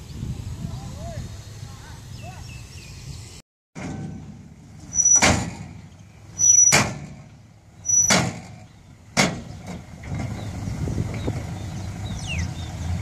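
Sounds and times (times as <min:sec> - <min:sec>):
low engine rumble: 0:00.0 - 0:13.0
metal tailgate banging shut: 0:03.8 - 0:07.3, 0:07.9 - 0:10.3
brief high squeak: 0:04.9 - 0:05.3, 0:06.4 - 0:06.8.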